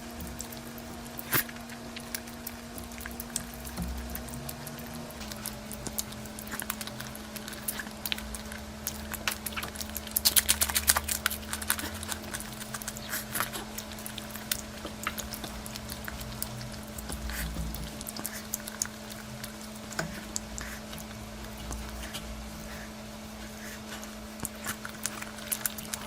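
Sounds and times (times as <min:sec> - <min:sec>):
low hum: 0:00.0 - 0:26.0
person chewing and smacking: 0:00.0 - 0:26.0.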